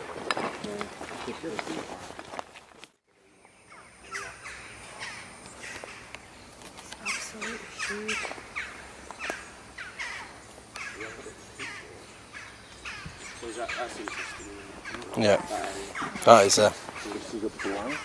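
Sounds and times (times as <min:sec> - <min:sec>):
bird calling: 0:03.2 - 0:18.0.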